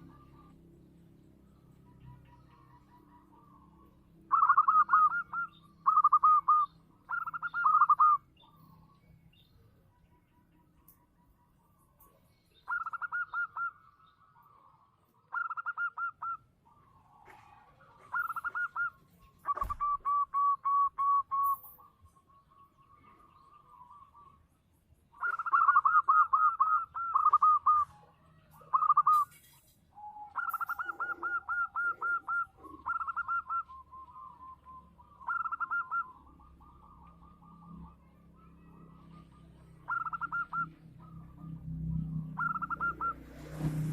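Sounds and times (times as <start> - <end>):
dove cooing: 0.0 - 0.8, 1.8 - 8.6, 12.6 - 13.8, 15.2 - 21.8, 25.2 - 43.3.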